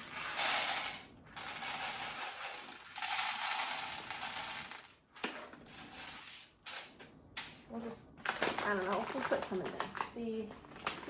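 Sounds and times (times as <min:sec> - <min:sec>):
coffee beans pouring: 0:00.0 - 0:05.0.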